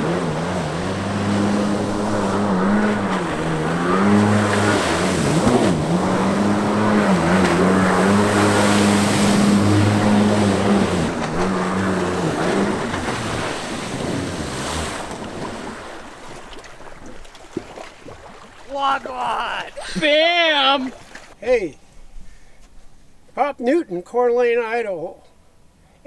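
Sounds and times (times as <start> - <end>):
jet ski engine running hard: 0.0 - 20.8
wind: 0.0 - 26.0.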